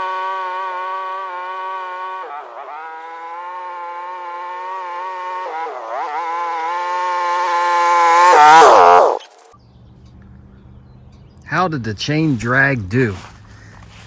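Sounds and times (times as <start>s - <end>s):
small vehicle engine running: 0.0s - 11.4s.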